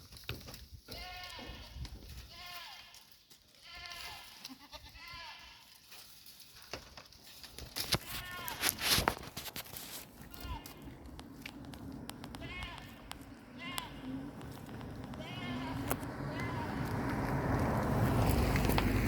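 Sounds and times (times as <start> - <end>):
goats bleating: 0.9 - 5.8, 8.0 - 8.8, 10.2 - 11.0, 12.2 - 16.9.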